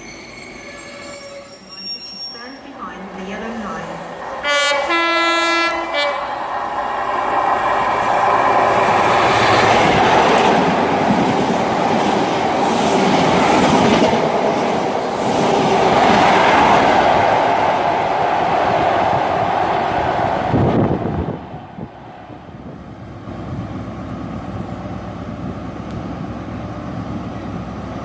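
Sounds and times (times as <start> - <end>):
train running past on track: 2.4 - 28.0
train horn: 4.4 - 6.3.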